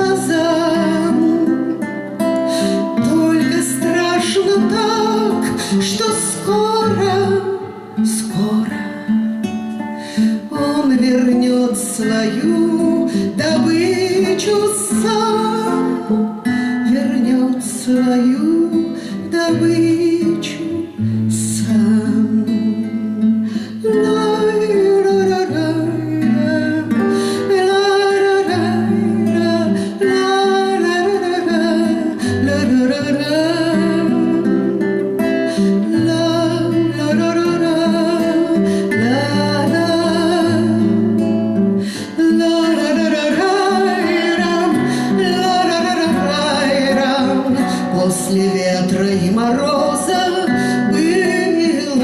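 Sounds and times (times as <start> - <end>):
acoustic guitar playing: 0.0 - 52.0.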